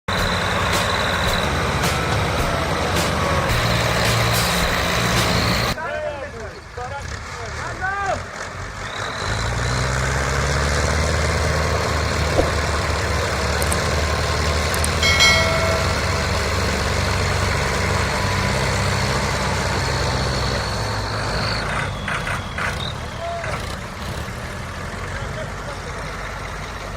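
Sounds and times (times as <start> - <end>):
tractor diesel engine under load: 0.0 - 26.9
short pitched tone: 15.0 - 17.5.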